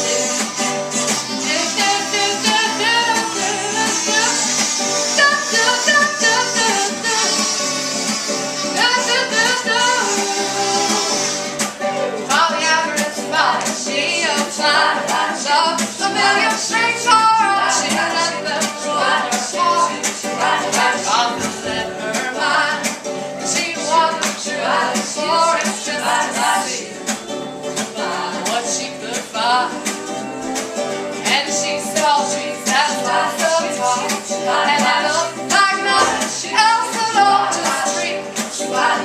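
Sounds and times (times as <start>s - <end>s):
women singing in harmony: 1.4s - 7.6s, 8.6s - 11.2s, 12.3s - 39.0s
plucked banjo: 5.6s - 39.0s.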